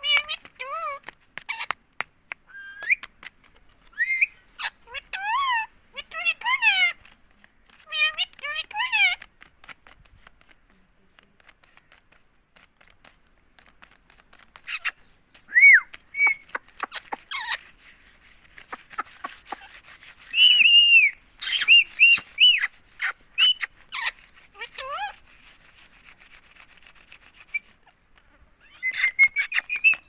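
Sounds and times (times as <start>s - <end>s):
parrot whistling: 15.5s - 16.4s, 20.3s - 22.7s.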